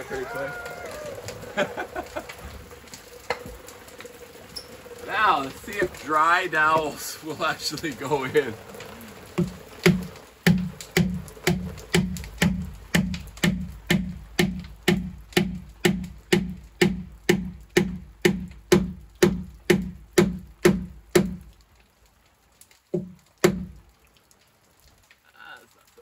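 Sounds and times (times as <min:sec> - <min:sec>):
mallet knocking wooden peg: 0:09.4 - 0:21.4.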